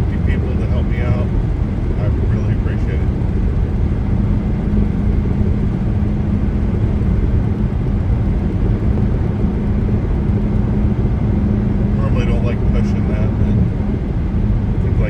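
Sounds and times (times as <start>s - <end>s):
car road noise from inside: 0.0s - 15.0s.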